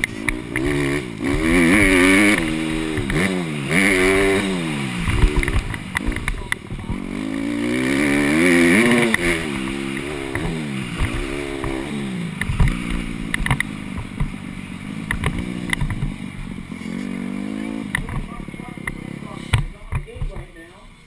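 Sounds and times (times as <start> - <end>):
sharp knocks and clicks: 0.0 - 3.3, 5.0 - 7.0, 9.0 - 11.8, 12.4 - 14.4, 15.0 - 16.2, 17.9 - 20.5
dirt bike engine revving: 0.0 - 20.8.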